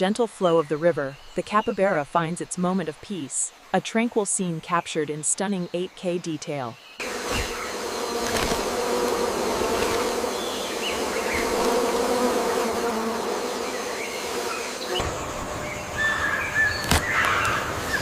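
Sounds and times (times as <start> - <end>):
insect buzz: 6.8 - 18.0
bird chirps: 13.7 - 18.0.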